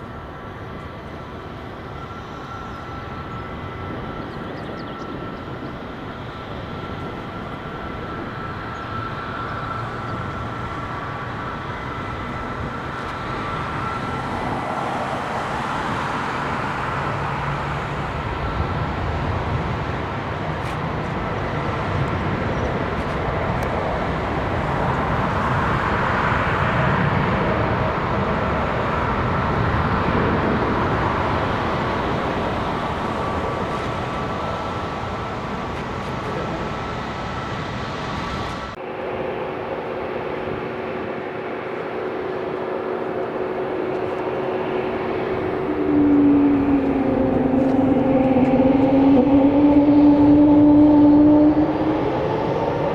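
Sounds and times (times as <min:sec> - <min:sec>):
jet engines whining and rumbling: 0:00.0 - 0:52.9.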